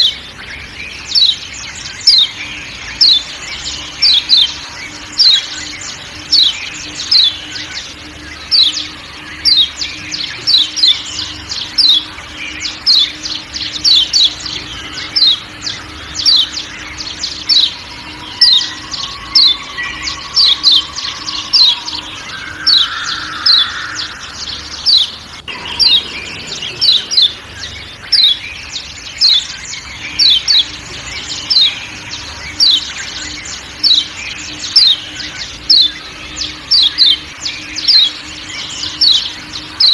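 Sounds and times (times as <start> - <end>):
faint forest background: 0.0 - 39.9
bird giving sharp high calls: 2.0 - 39.9.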